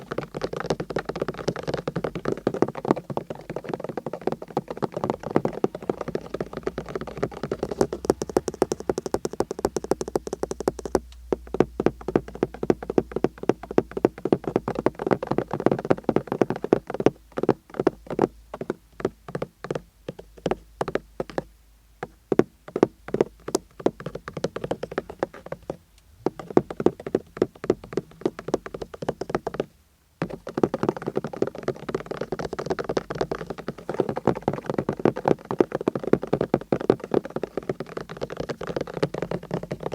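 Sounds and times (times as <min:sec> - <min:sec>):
fast light tapping: 0:00.0 - 0:19.2.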